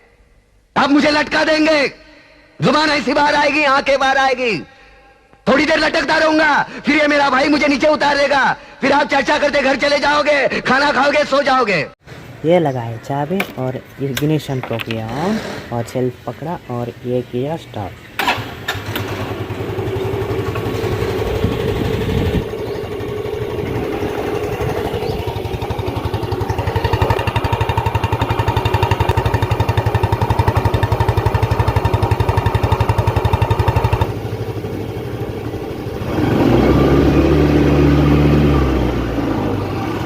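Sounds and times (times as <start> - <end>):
scooter engine idling and revving: 17.9 - 40.0.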